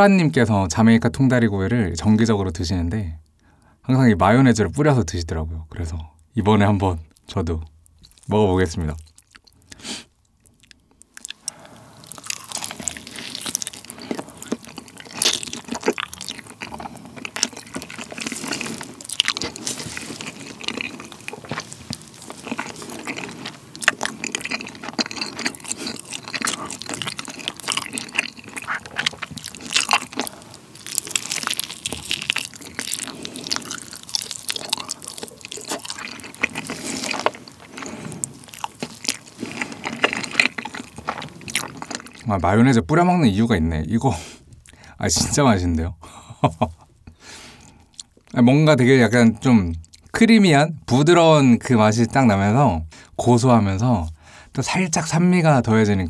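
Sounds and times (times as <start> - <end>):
wet biting and chewing: 9.0 - 42.3.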